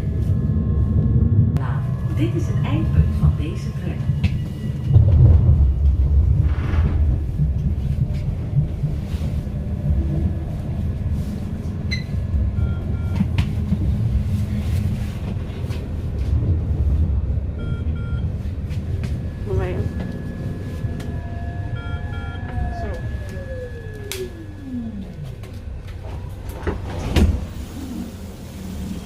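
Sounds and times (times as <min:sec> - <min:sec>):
tram rumble: 0:00.0 - 0:29.0.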